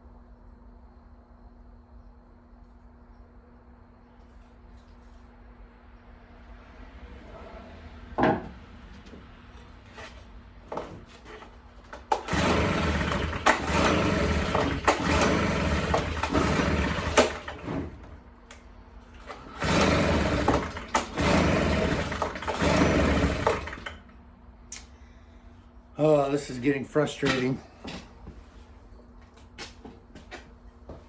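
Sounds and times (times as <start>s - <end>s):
knock: 8.2s - 8.5s
leaf blower engine running unevenly: 10.7s - 18.2s, 19.2s - 24.1s.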